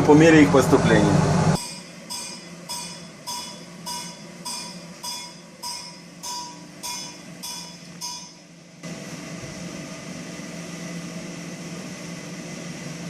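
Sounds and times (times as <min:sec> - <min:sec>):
ringing metallic clinks: 0:01.6 - 0:08.5.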